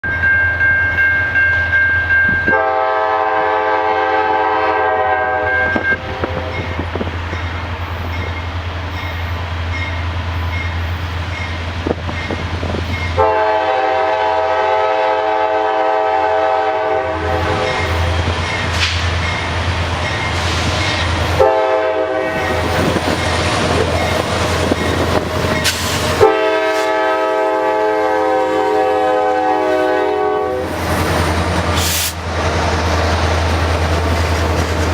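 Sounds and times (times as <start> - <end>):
diesel locomotive engines droning: 0.0 - 34.9
locomotive air horn blasts: 2.4 - 6.8, 13.2 - 18.3, 21.4 - 22.7, 25.6 - 30.8.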